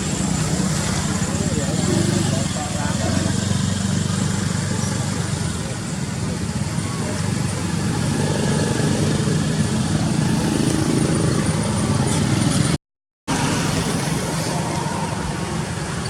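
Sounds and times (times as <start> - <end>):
vehicle engine rumble: 0.0 - 16.0
road hiss: 13.3 - 16.0.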